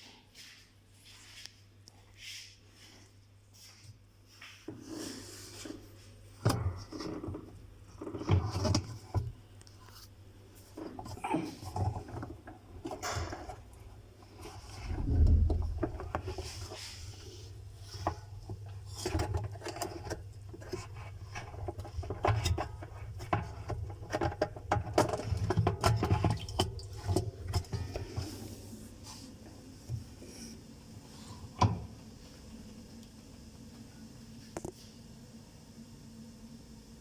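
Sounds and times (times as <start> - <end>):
steady low hum: 13.5 - 34.4
heavy low thump: 14.9 - 16.6.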